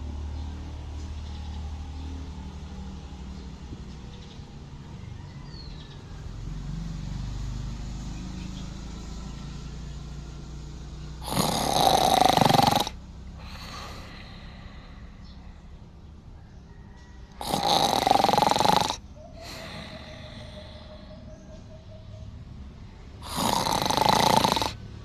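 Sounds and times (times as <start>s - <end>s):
dog snoring: 11.2s - 15.2s, 17.3s - 21.0s, 23.2s - 24.8s.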